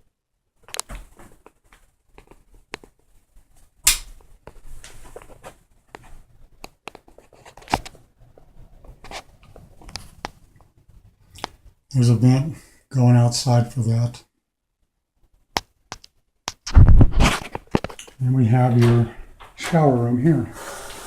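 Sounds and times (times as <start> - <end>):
knocks and scuffs in a room: 0.7 - 11.0.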